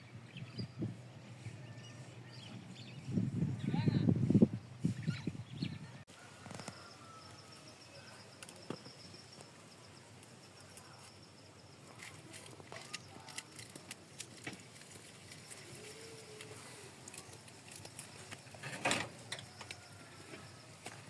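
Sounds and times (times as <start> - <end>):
high-pitched insect trill: 6.2 - 14.2, 15.0 - 21.0.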